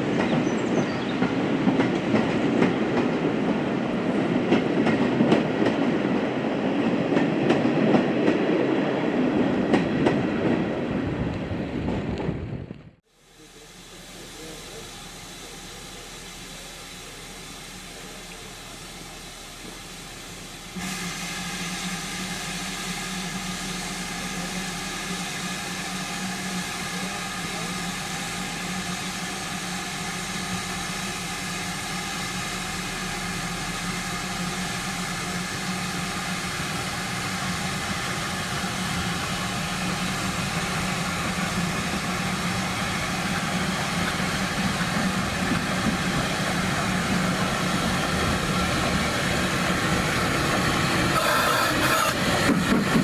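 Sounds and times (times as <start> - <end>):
steam train hiss and rumble: 0.0 - 10.6, 13.0 - 53.0.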